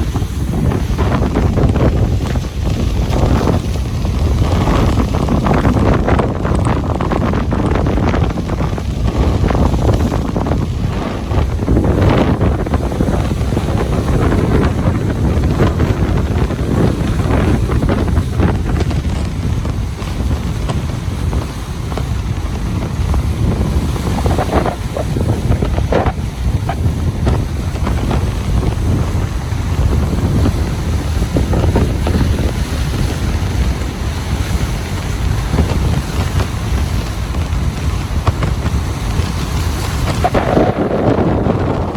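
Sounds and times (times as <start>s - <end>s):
ocean surf washing onto beach: 0.0s - 41.9s
wind rumble on microphone: 0.0s - 41.9s.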